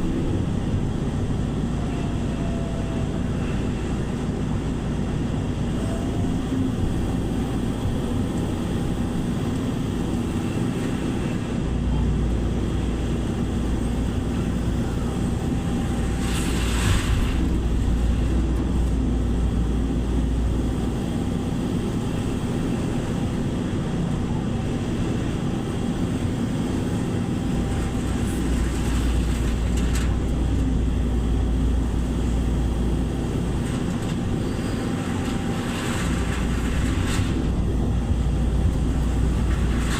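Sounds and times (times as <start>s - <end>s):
heavy engine running: 0.0s - 39.9s.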